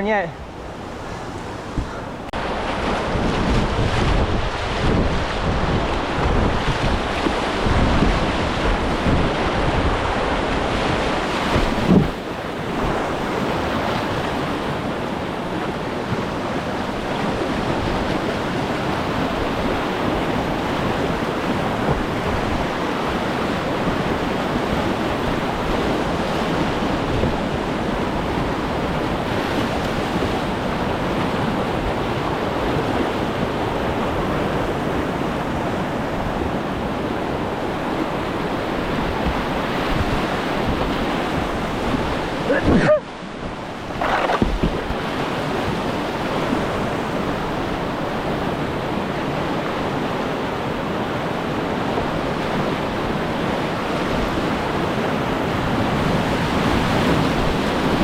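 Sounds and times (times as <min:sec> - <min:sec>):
wind buffeting microphone: 0:00.1 - 0:49.5
river whitewater rushing: 0:35.4 - 0:58.0.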